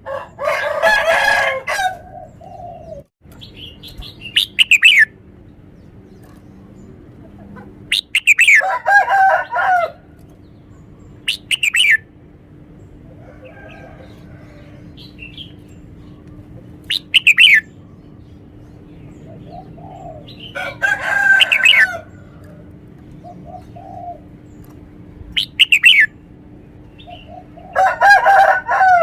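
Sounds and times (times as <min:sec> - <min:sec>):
low bird call: 0:02.2 - 0:05.2, 0:07.6 - 0:08.7, 0:11.2 - 0:12.1, 0:13.5 - 0:18.2, 0:25.3 - 0:26.2.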